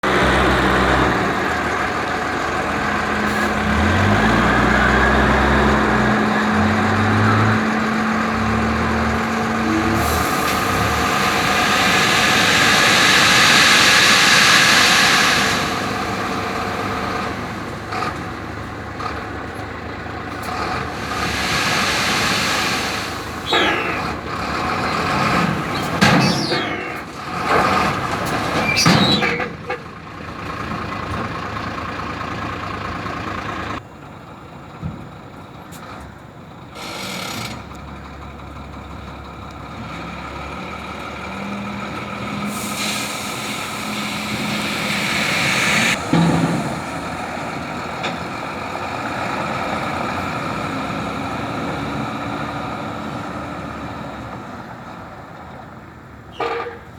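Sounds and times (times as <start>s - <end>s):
diesel engine running: 0.0s - 56.9s
loud hiss: 9.2s - 17.7s, 20.8s - 24.3s, 42.2s - 48.0s.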